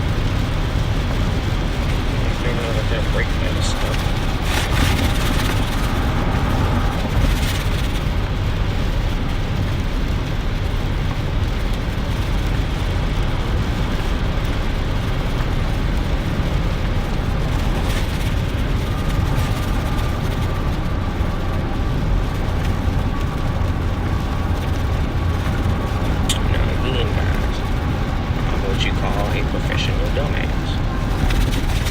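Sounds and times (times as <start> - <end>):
engine and tyre noise: 0.0 - 31.9
rain hiss: 0.0 - 31.9
faint steady whine: 14.8 - 31.9.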